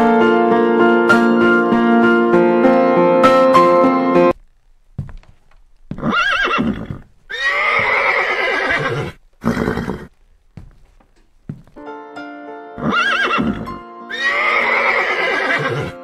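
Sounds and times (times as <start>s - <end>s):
horse whinnying: 6.0s - 10.1s, 12.8s - 16.0s.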